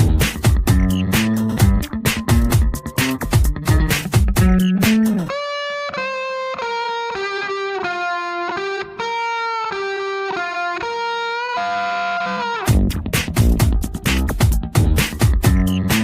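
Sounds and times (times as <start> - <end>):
dance track with drums: 0.0 - 5.3, 12.7 - 16.0
electric guitar melody: 0.0 - 16.0.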